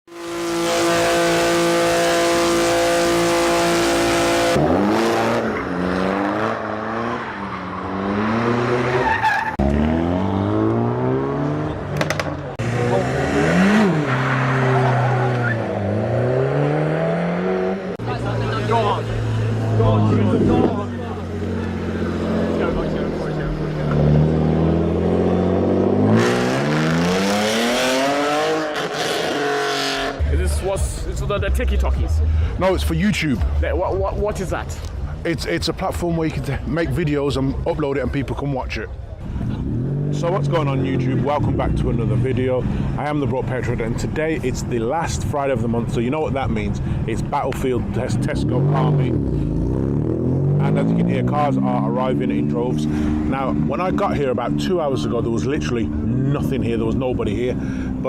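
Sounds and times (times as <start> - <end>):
car engine revving: 0.1 - 33.6, 39.2 - 58.0
tyre squeal: 8.8 - 9.7, 13.8 - 15.8.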